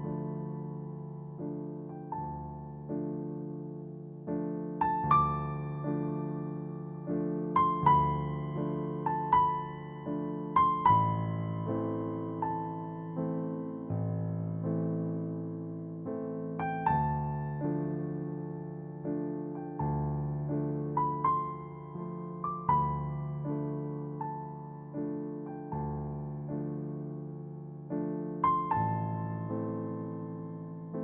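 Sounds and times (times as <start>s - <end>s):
soft piano music: 0.0s - 31.0s.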